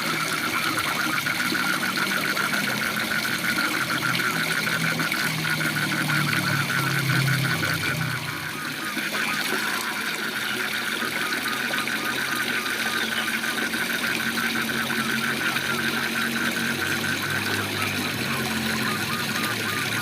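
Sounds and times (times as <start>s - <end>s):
frogs calling in pulsed trills: 0.0s - 20.0s.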